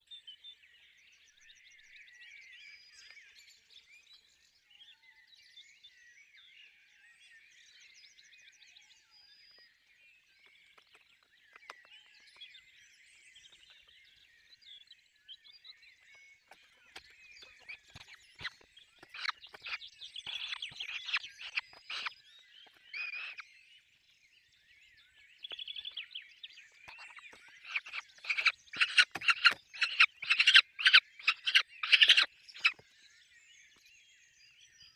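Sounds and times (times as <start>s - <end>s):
falcon chicks calling: 16.5s - 23.4s, 26.7s - 32.8s.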